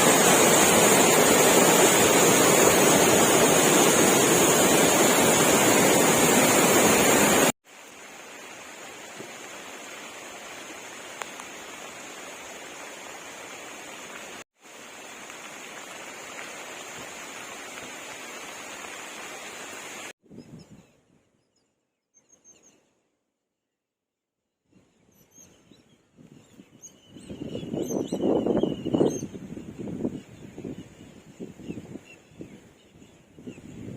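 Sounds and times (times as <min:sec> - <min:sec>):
waterfall roaring: 0:00.0 - 0:20.1.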